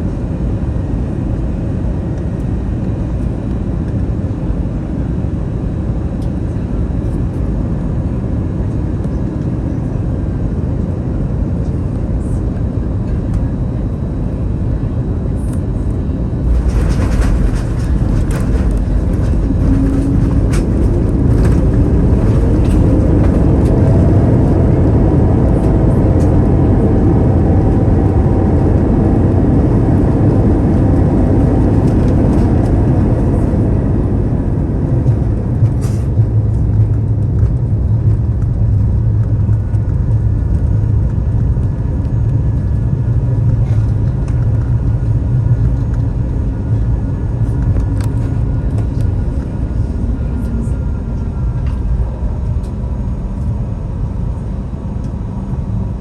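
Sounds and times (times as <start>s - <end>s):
jet engines in reverse thrust: 0.0s - 56.0s
low cabin rumble: 0.0s - 56.0s
landing gear thump and rattle: 16.4s - 23.7s.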